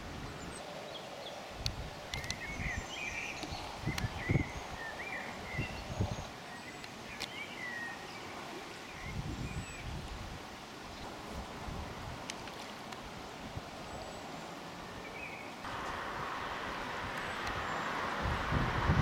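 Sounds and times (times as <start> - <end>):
outdoor background hiss: 0.0 - 19.0
small birds chirping: 0.2 - 10.0, 13.8 - 16.0, 17.0 - 18.2
wind rumble on microphone: 1.4 - 6.4, 9.0 - 14.1, 15.6 - 19.0.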